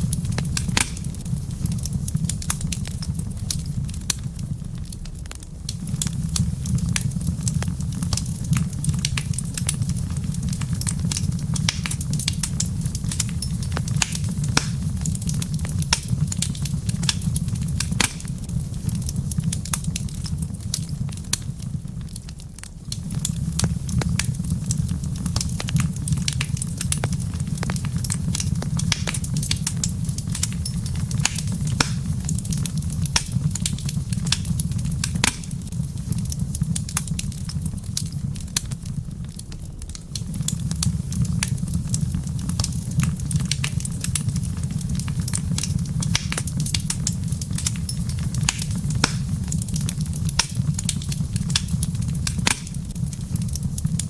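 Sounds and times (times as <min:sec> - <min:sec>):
low rumble of flames: 0:00.0 - 0:54.0
wood fire pops and snaps: 0:00.0 - 0:54.0.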